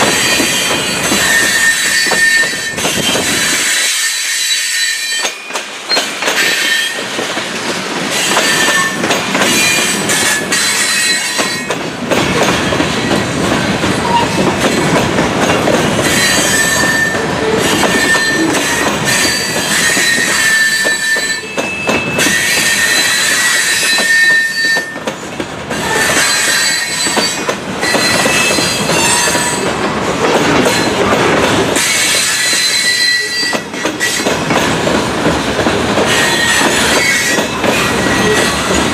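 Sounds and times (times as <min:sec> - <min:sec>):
train wheels rumbling and clattering: 0:00.0 - 0:38.9
high wheel squeals: 0:00.1 - 0:07.0, 0:16.0 - 0:25.0, 0:25.8 - 0:29.7, 0:31.8 - 0:34.3.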